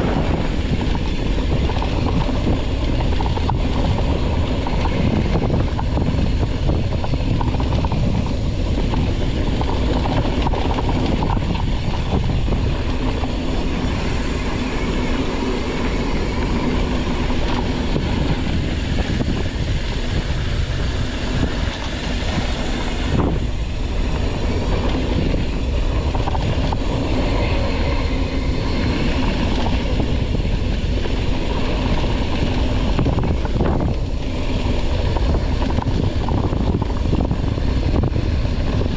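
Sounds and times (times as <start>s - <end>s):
bike rattling over rough ground: 0.0s - 38.9s
wind rush on microphone: 0.0s - 38.9s.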